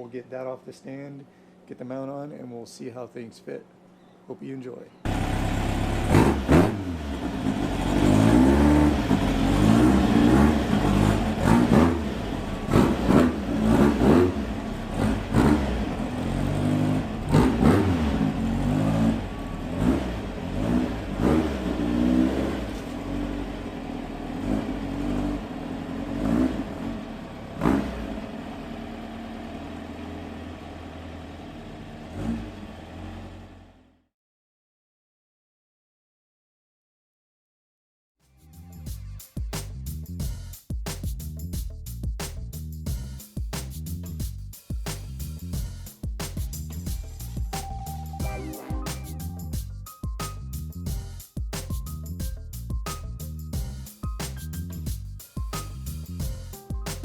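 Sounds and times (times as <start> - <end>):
car engine revving: 5.1 - 33.8.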